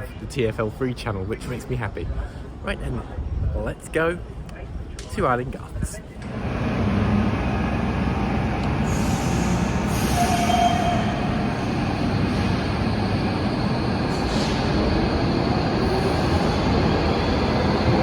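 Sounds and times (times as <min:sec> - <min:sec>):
train rumbling: 0:06.1 - 0:18.0
wheel squeal: 0:08.9 - 0:11.4.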